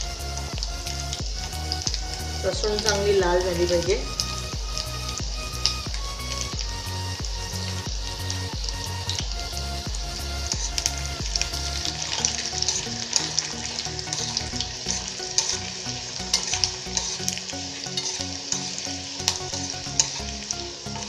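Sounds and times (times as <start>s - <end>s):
garlic sizzling in oil: 0.0s - 21.0s
seeds crackling: 0.0s - 21.0s
spoon stirring in pan: 11.5s - 21.0s.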